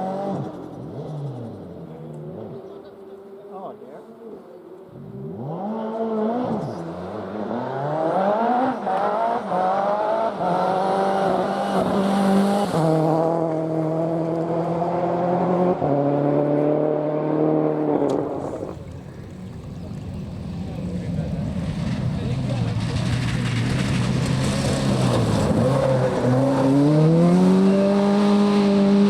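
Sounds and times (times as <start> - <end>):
rally car engine revving: 4.9 - 29.0
gear changes: 18.0 - 26.8.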